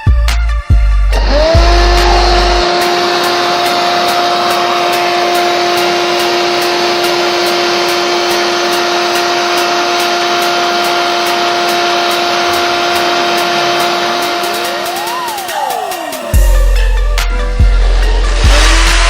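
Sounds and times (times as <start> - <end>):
vacuum cleaner motor whine: 1.2 - 17.0.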